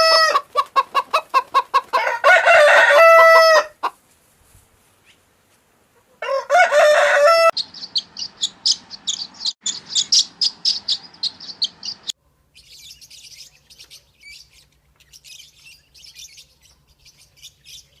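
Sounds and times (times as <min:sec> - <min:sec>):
rooster crowing: 0:00.0 - 0:00.6, 0:01.9 - 0:03.9, 0:06.2 - 0:07.6
small bird chirping: 0:07.6 - 0:18.0.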